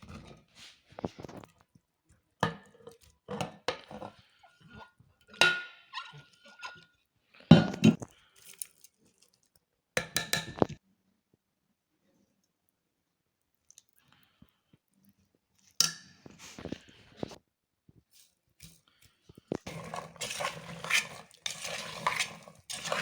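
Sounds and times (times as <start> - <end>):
metal cookware knocking and clinking: 5.4 - 6.8.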